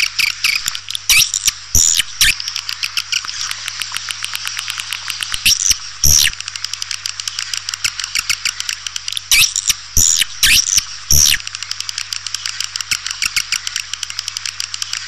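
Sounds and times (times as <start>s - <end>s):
faint steady hum: 0.0s - 15.0s
swiftlet twittering chirps: 0.1s - 3.2s, 5.3s - 6.3s, 9.2s - 11.4s.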